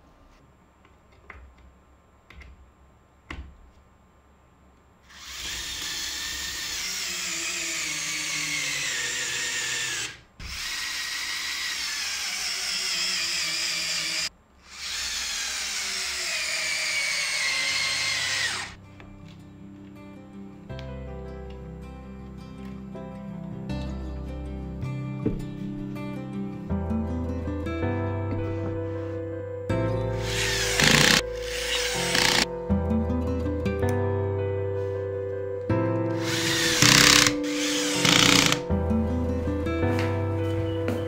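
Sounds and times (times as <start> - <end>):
power drill whine: 5.1 - 18.8, 30.2 - 32.5, 36.2 - 38.7.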